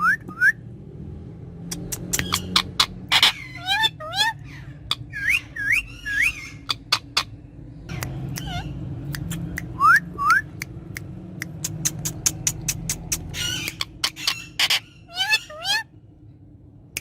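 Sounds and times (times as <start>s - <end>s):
sharp clicks: 10.5s - 13.8s.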